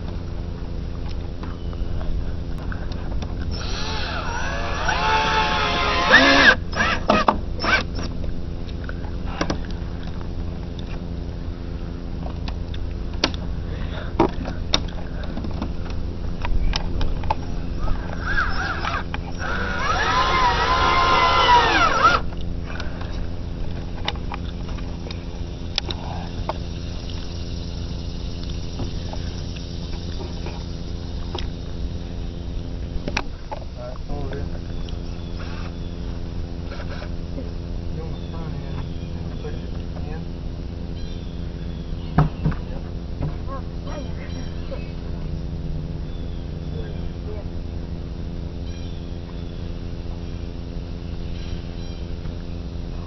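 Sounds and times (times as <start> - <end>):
power drill driving screws: 3.5 - 8.1, 18.2 - 22.3.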